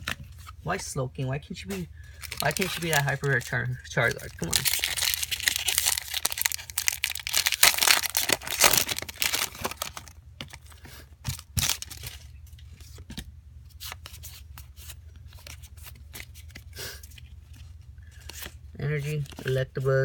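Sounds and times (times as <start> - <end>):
cards clicking and rustling: 2.1 - 12.2, 13.8 - 19.6
foil wrapper tearing and crinkling: 2.2 - 10.2, 11.3 - 12.2.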